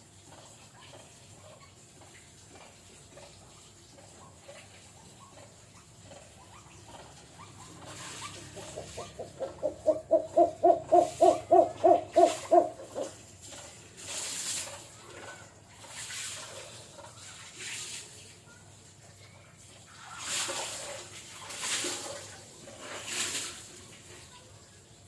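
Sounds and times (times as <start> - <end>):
bird low hooting notes: 8.4 - 13.2.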